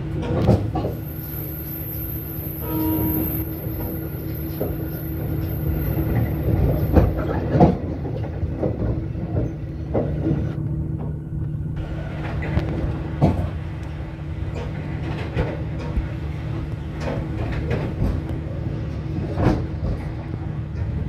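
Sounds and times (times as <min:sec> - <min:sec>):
diesel engine drone: 0:00.0 - 0:21.0.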